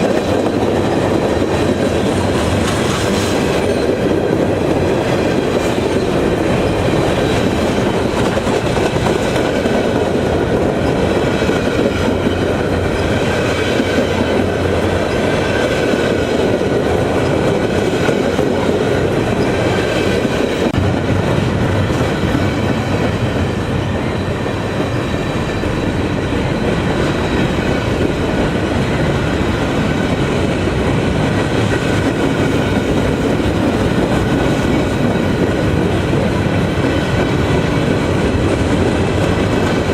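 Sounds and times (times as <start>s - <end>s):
railroad cars rumbling on track: 0.0s - 39.9s.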